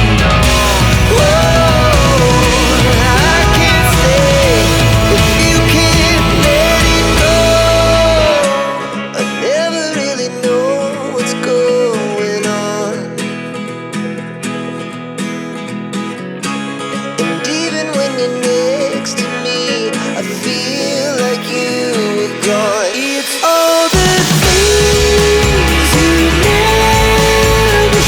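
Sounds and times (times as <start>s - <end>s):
heavy bass: 0.0s - 8.5s, 24.0s - 28.0s
song with guitar and beat: 0.0s - 28.0s.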